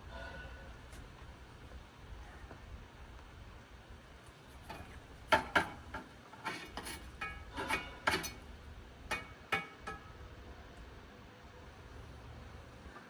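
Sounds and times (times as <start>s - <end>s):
utensils clinking against a dish: 4.7s - 8.5s.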